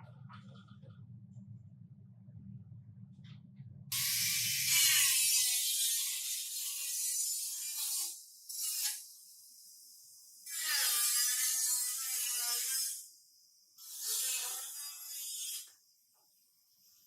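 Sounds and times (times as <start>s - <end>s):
handheld power tool hissing: 4.0s - 5.6s.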